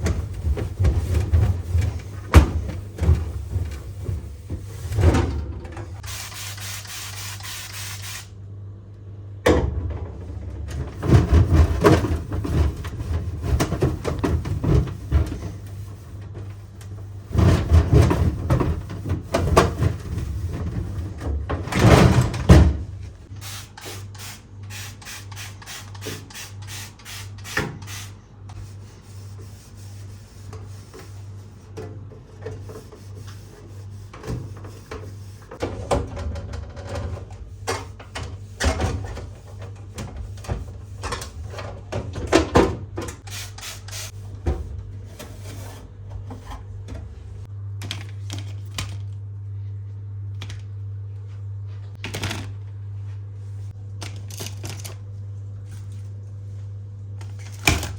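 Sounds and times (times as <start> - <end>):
items clicking knocking and rustling: 54.0 - 55.0.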